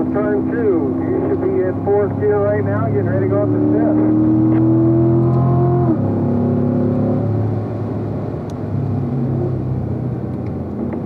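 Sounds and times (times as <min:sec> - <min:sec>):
car engine from inside cabin: 0:00.0 - 0:11.0.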